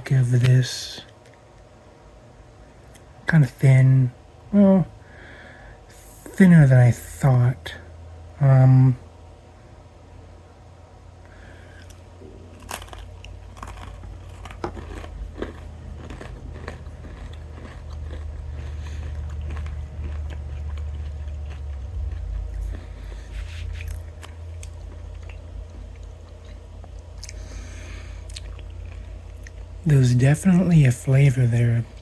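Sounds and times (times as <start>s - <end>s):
chewing: 11.7s - 29.7s
crunching nut bar: 11.8s - 22.7s
low rumble: 12.1s - 30.0s.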